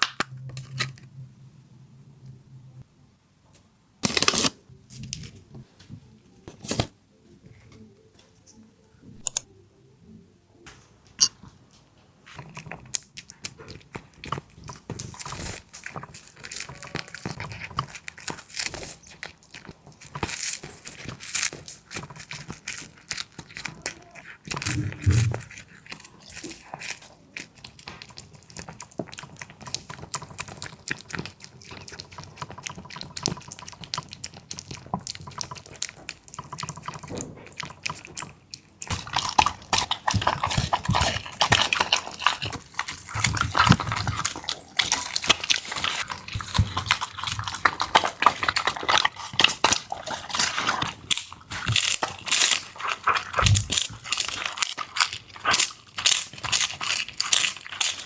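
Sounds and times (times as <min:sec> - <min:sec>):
dog eating wet food: 0:12.3 - 0:58.0.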